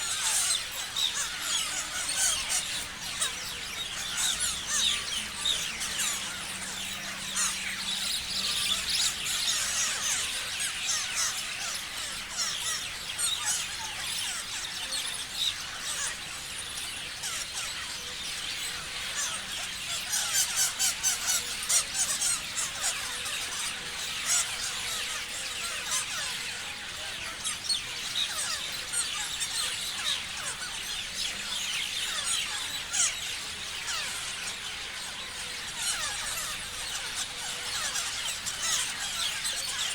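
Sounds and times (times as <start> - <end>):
parrots chirping and screeching: 0.0 - 39.9.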